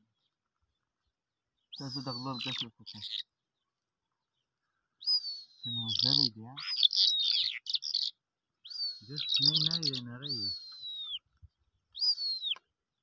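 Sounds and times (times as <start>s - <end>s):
bird whistling and chirping: 1.7s - 3.2s, 5.0s - 12.7s.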